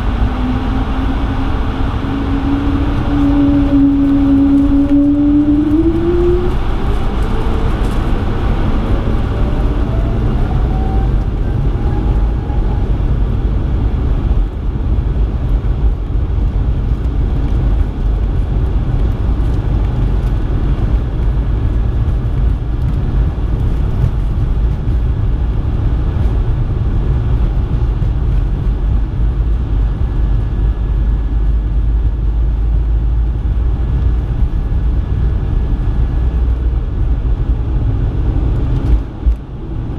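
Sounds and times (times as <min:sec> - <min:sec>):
jet engine whine rising: 0:00.0 - 0:13.2
airplane cabin low rumble: 0:00.0 - 0:39.9.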